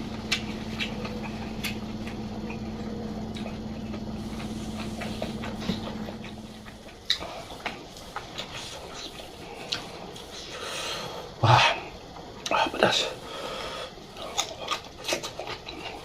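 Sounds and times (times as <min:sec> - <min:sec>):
person chewing: 0:00.0 - 0:10.6, 0:14.1 - 0:16.0
low hum: 0:00.0 - 0:16.0.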